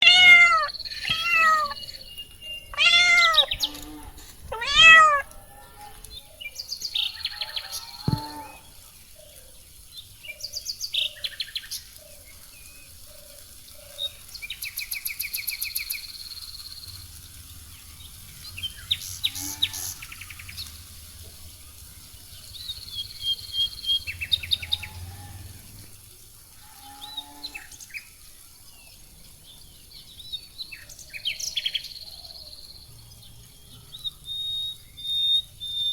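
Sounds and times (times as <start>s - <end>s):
cat meowing: 0.0s - 1.9s, 2.7s - 3.6s, 4.4s - 5.3s
birds chirping: 0.0s - 11.2s.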